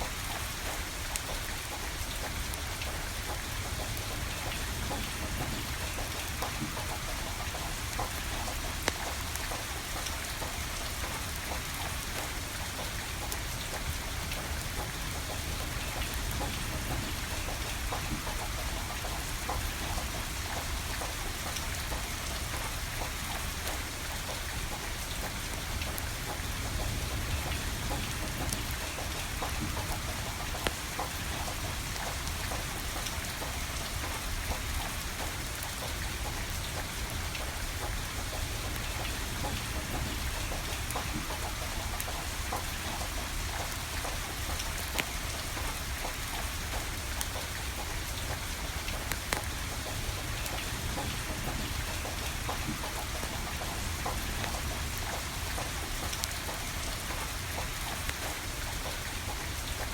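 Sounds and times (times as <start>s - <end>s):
steady rain: 0.0s - 59.9s
wood fire crackling: 22.8s - 34.6s.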